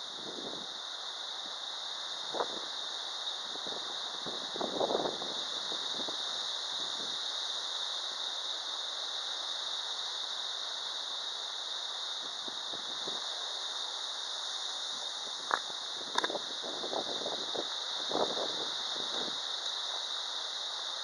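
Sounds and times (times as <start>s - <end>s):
rain and wind hiss: 0.0s - 21.0s.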